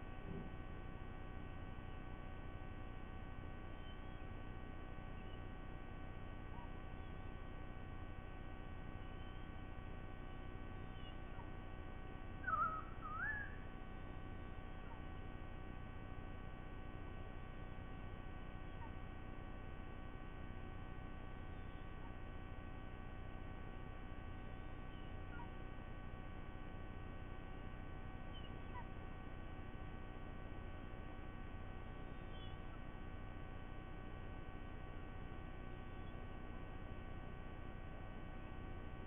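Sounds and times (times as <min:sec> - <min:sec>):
electrical hum: 0:00.0 - 0:39.0
bird whistling call: 0:10.9 - 0:11.5, 0:12.4 - 0:13.7, 0:28.3 - 0:28.9, 0:32.1 - 0:32.8.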